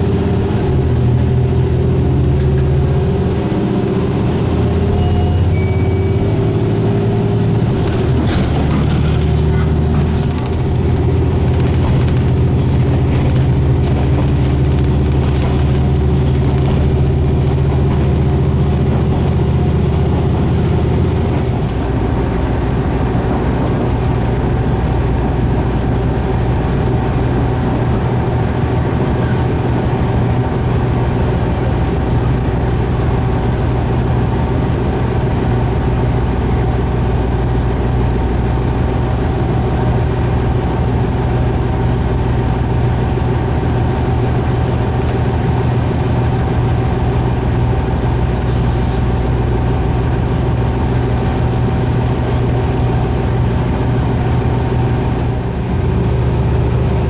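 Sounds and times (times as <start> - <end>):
diesel railcar engine running: 0.0 - 57.0.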